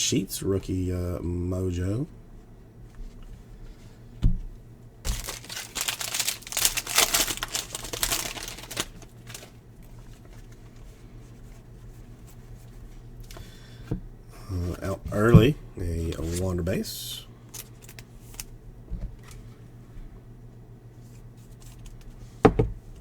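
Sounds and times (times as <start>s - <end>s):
wrapper tearing and crinkling: 5.1s - 10.5s.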